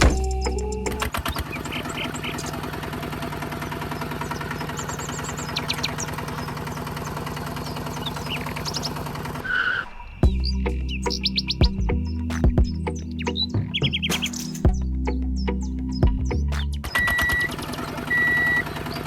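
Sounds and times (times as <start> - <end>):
birds chirping: 0.0 - 19.0
small motor pulsing: 0.2 - 9.6, 17.0 - 19.0.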